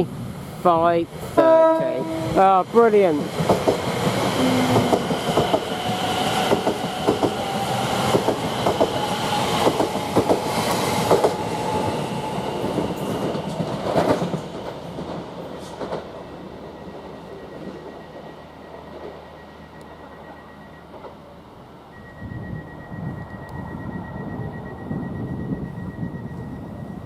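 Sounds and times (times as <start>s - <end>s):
train steady whine: 0.0s - 27.0s
train wheels clicking over rail joints: 3.3s - 11.5s, 12.4s - 16.2s.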